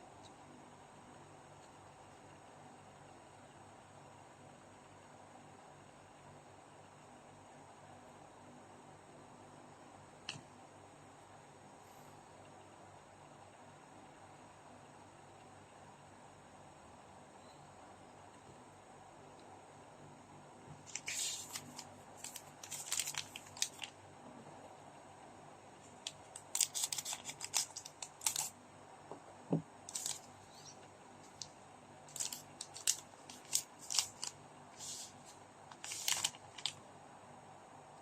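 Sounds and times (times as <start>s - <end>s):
cards and foil packs rustling: 20.8s - 23.9s, 26.1s - 28.5s, 29.9s - 30.4s, 32.1s - 36.8s.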